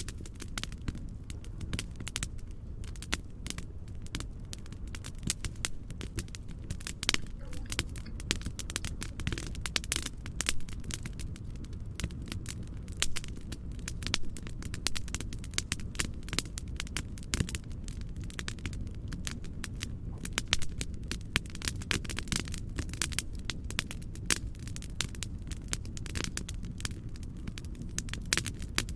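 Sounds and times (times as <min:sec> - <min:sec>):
fire pops and snaps: 0:00.0 - 0:28.9
wood fire crackling: 0:00.0 - 0:28.9
low rumble: 0:03.8 - 0:09.2.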